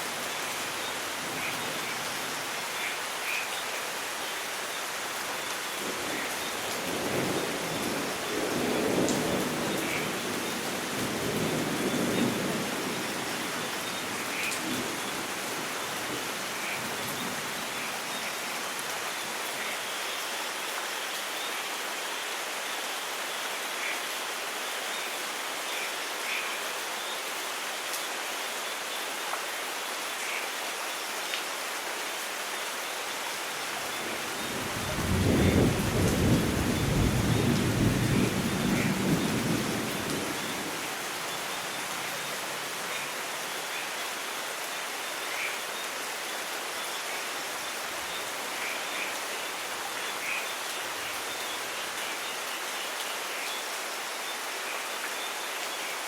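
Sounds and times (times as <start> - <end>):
steady rain falling: 0.0 - 56.0
thunder rumble: 34.5 - 40.6.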